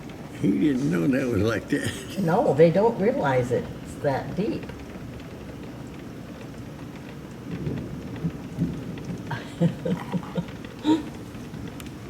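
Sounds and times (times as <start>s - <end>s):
heavy rain: 0.0s - 12.0s
low rumbling thunder: 2.6s - 11.8s.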